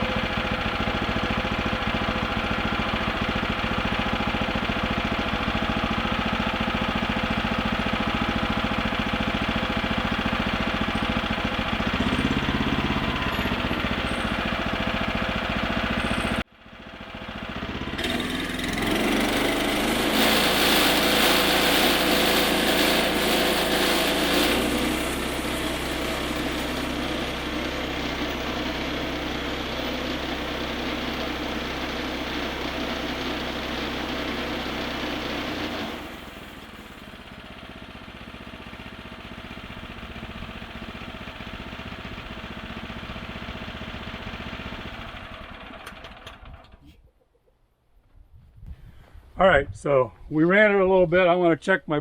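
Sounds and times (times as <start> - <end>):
gasoline engine running: 0.0 - 46.9.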